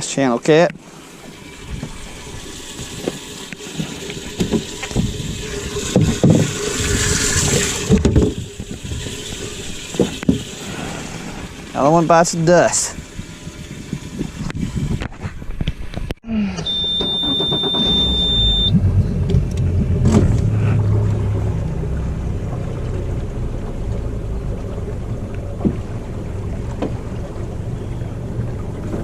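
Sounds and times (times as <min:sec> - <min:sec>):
outboard boat motor running: 0:00.2 - 0:29.0
high steady beep: 0:16.6 - 0:18.8.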